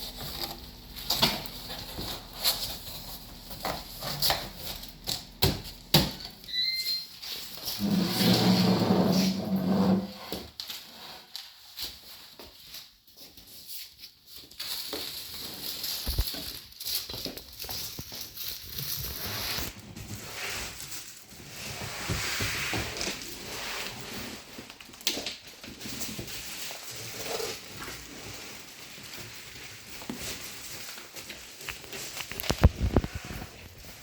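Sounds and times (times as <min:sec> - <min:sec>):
packaging rustling and scraping: 0:00.0 - 0:34.0.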